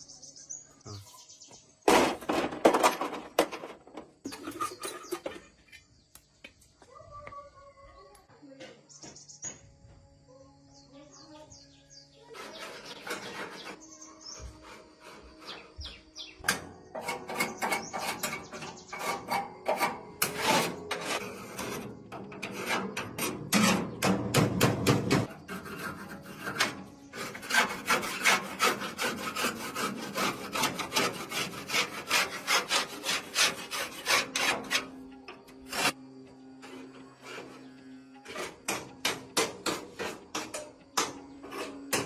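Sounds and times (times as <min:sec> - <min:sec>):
hand scraping strokes: 0:12.2 - 0:16.0, 0:17.0 - 0:23.9, 0:25.3 - 0:35.0, 0:35.6 - 0:36.0.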